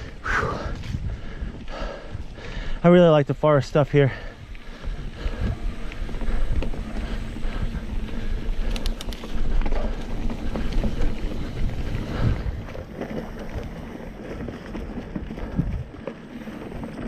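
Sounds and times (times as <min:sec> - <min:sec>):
wind on microphone: 0:00.0 - 0:02.7, 0:04.3 - 0:16.1
bike tyres rumbling on dirt: 0:00.0 - 0:17.0
bike knocking and rattling: 0:00.6 - 0:17.0
sharp clicks: 0:08.5 - 0:09.5.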